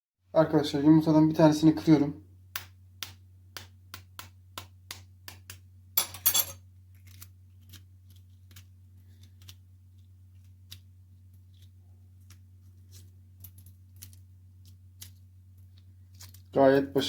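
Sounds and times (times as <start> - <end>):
egg shell tapping on hard surface: 2.5 - 5.6
egg shell crackling: 6.6 - 16.6.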